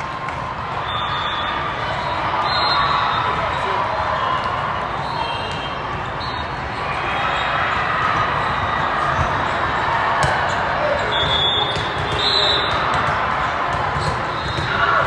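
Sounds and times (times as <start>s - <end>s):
busy sports hall din: 0.0s - 15.0s
balls bouncing on gym floor: 9.0s - 15.0s.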